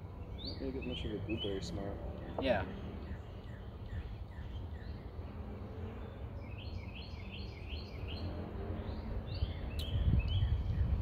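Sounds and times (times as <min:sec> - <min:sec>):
outdoor background rumble: 0:00.0 - 0:11.0
small bird chirping: 0:05.9 - 0:11.0.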